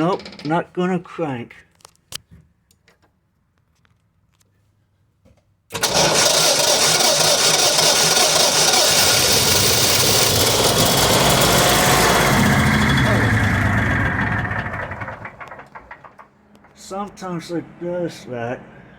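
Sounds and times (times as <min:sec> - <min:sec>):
generator engine cranking: 0:05.7 - 0:16.8.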